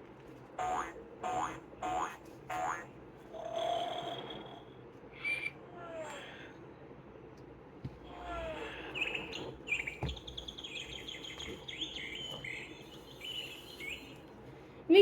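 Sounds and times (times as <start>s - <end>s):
recorded birdsong from speaker: 8.1s - 14.3s.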